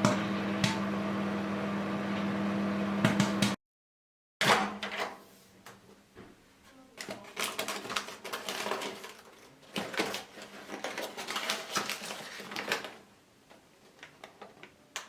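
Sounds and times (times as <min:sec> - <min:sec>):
paper bag crinkling: 0:07.1 - 0:13.0.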